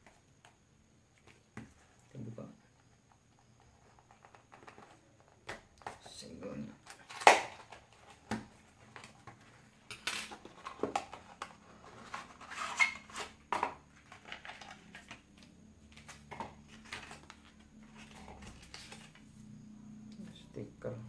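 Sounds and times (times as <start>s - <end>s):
box packaging being handled: 3.4s - 19.4s.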